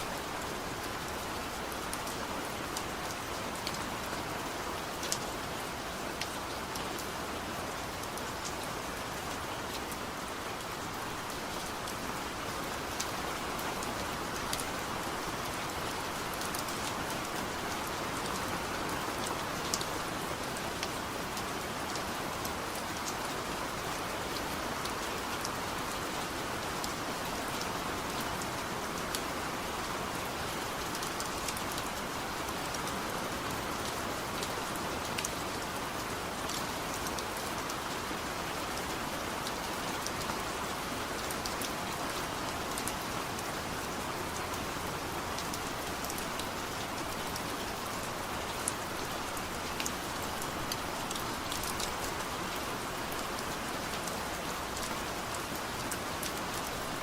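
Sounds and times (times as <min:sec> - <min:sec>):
heavy rain: 0:00.0 - 0:57.0
raindrops ticking on a surface: 0:00.1 - 0:57.0.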